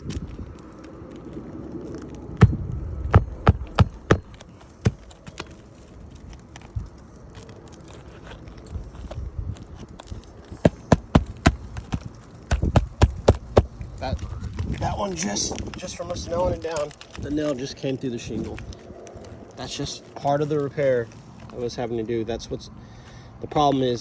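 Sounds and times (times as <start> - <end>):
hammer striking nails: 2.5 - 5.4, 10.6 - 13.7.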